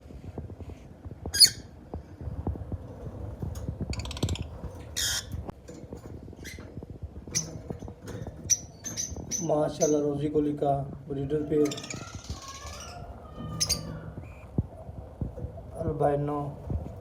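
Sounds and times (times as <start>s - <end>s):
faint clicks and rustling: 0.0s - 11.1s
lovebirds squawking: 11.4s - 14.6s.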